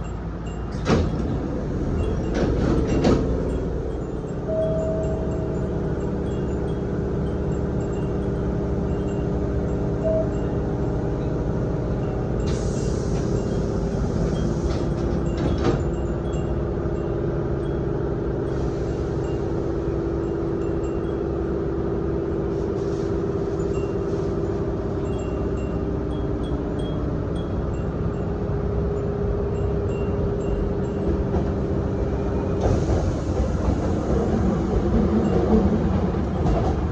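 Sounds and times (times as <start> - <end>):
wind chimes tinkling: 0.0 - 0.8, 2.0 - 12.8, 13.4 - 22.5, 23.2 - 31.9
train running noise: 0.0 - 36.9.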